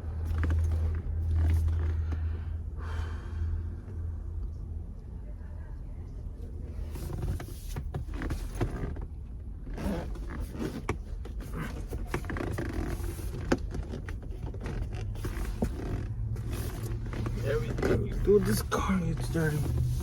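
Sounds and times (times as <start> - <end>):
hands rubbing and scraping trim: 16.5 - 20.0.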